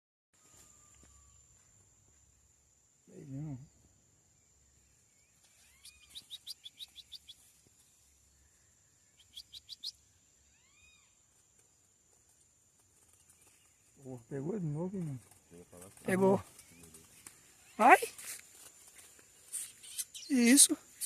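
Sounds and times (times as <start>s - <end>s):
songbird chipping notes: 4.4s - 11.7s, 19.4s - 21.0s
high insect-like trill: 13.1s - 21.0s.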